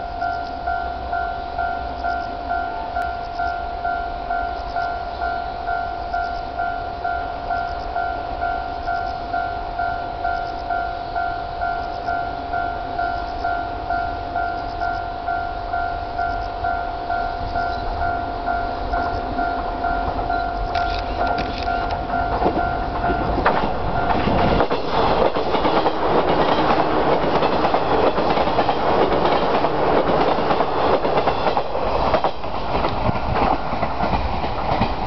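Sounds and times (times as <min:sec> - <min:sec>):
level crossing bell ringing: 0:00.0 - 0:24.6
train wheels clattering over rail joints: 0:19.4 - 0:35.0.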